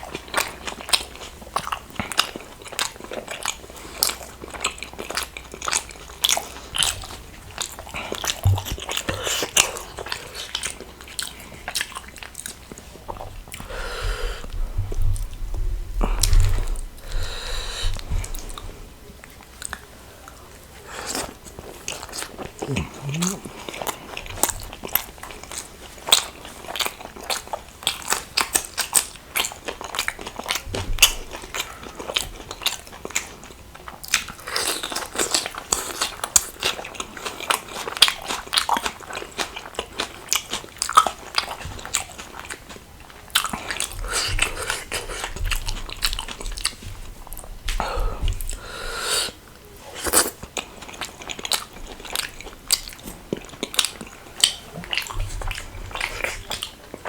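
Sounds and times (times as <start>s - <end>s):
wet chewing: 0.0s - 15.4s, 19.2s - 57.0s
lip smacks: 22.0s - 24.6s.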